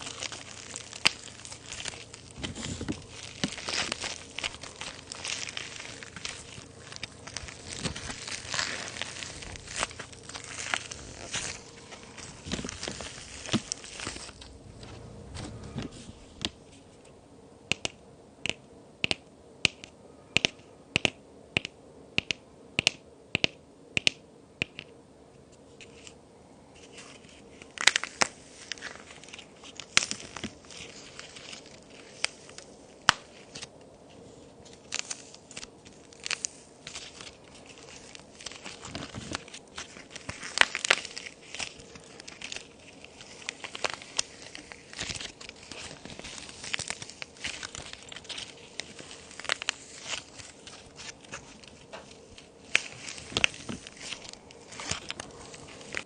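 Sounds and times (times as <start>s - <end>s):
clay pieces snapping and crumbling: 0.0s - 15.0s, 17.7s - 24.9s, 27.6s - 33.7s, 34.7s - 56.0s.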